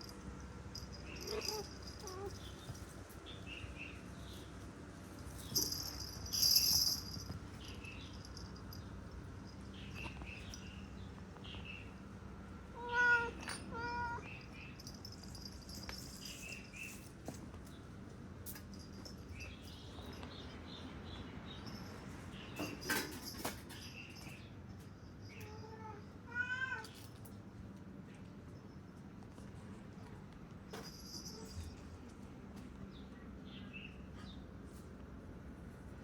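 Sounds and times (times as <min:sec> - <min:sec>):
cat meowing: 0:12.8 - 0:14.3, 0:25.6 - 0:27.0.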